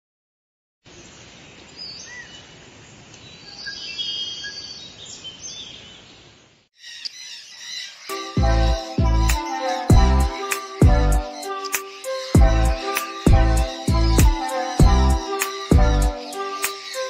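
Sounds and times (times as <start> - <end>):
background hiss: 0.9 - 6.7, 8.1 - 17.0
lovebirds chirping: 0.9 - 17.0
music with heavy bass beats: 8.3 - 11.8, 12.4 - 17.0.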